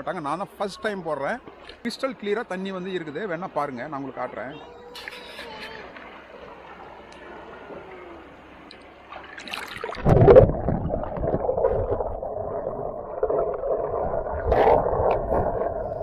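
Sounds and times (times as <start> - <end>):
stream water gurgling: 5.0 - 16.0.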